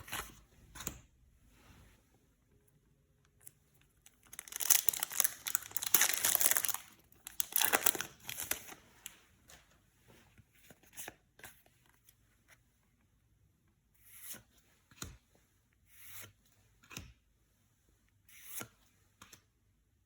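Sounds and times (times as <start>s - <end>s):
foil wrapper crinkling and tearing: 4.2s - 8.8s.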